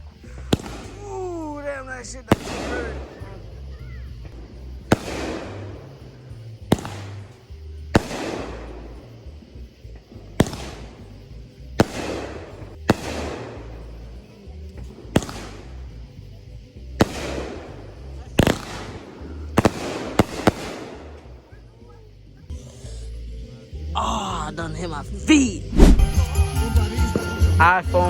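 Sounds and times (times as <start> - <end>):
fireworks bangs: 0.0 - 21.7, 25.8 - 26.4.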